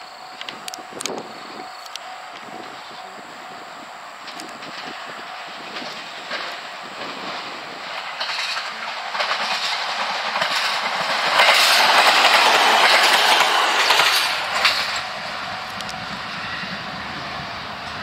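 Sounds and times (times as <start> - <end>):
electric train passing: 0.0 - 18.0
train wheel clacks: 4.2 - 16.8.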